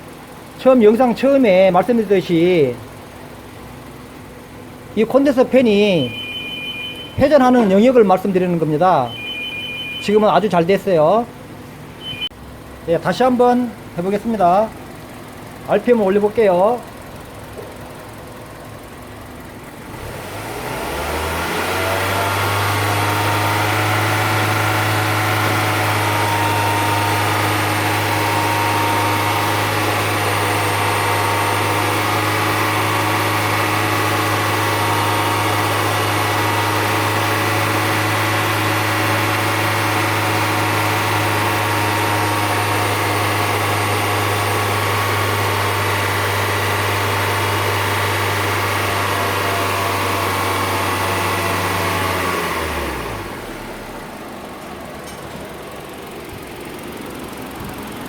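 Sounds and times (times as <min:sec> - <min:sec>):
car engine revving: 0:16.8 - 0:54.6.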